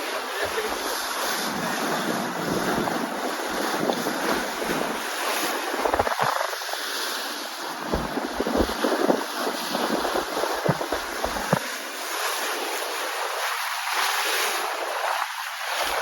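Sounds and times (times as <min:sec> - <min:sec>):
wind buffeting microphone: 0:00.0 - 0:06.8, 0:07.6 - 0:11.8
ocean waves washing: 0:00.0 - 0:16.0.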